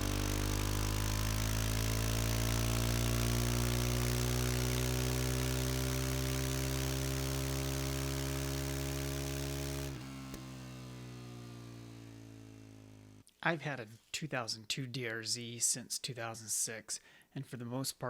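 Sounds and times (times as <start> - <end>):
motorcycle engine revving up: 0.0 - 13.2.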